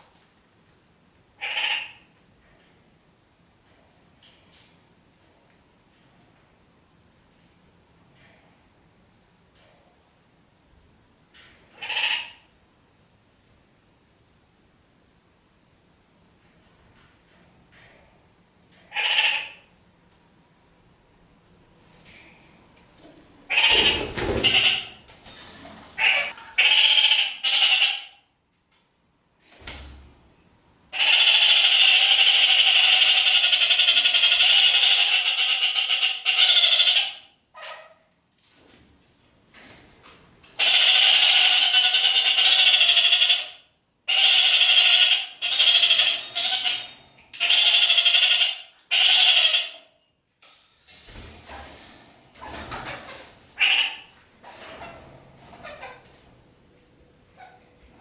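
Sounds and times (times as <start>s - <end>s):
parakeets calling: 23.5s - 25.0s.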